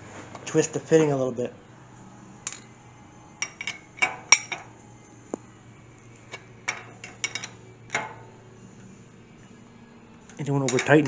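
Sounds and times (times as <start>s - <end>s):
tools clinking on metal fittings: 2.4s - 2.7s, 3.4s - 4.7s, 6.3s - 8.3s, 10.3s - 11.0s.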